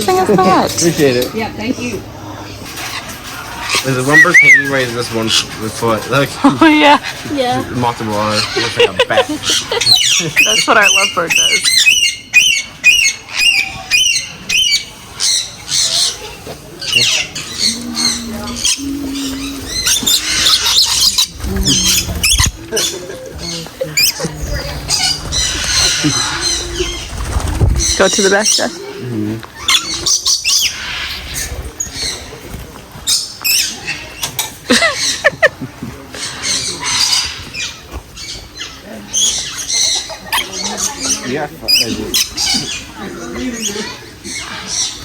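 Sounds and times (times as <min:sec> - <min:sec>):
parrots squawking: 0:00.0 - 0:32.4, 0:33.0 - 0:35.5, 0:36.2 - 0:45.0
low held tones: 0:17.6 - 0:22.7.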